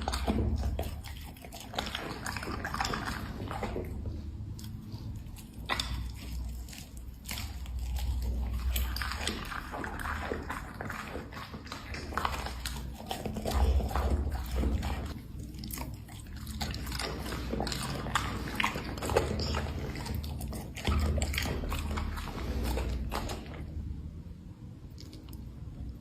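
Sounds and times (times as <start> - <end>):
dog chewing food: 0.0 - 24.2.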